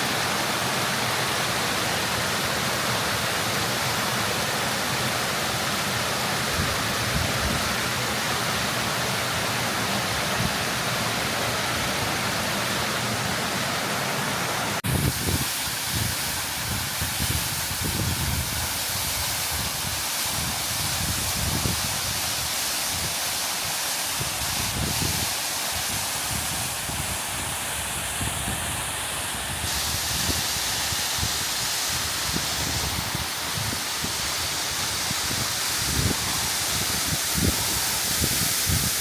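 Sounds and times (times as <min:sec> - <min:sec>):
waterfall rushing: 0:00.0 - 0:39.0
wind buffeting microphone: 0:14.8 - 0:23.2, 0:24.2 - 0:39.0.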